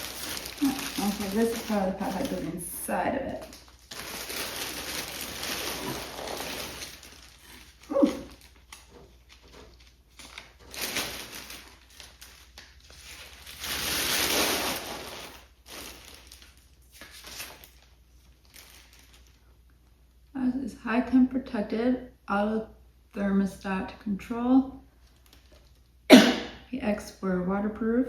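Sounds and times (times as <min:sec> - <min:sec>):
packaging rustling and crinkling: 0:00.0 - 0:19.7, 0:25.0 - 0:25.9.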